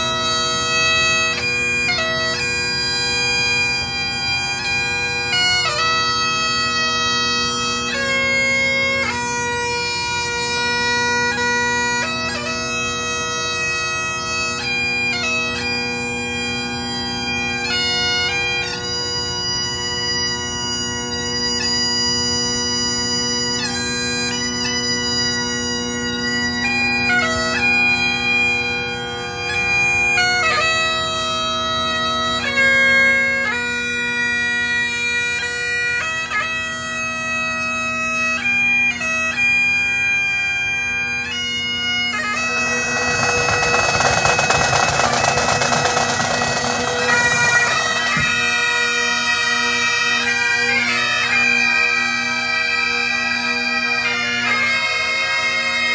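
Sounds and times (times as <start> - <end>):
bagpipes playing slow tune: 0.0 - 55.9
rushing noise: 42.4 - 48.5.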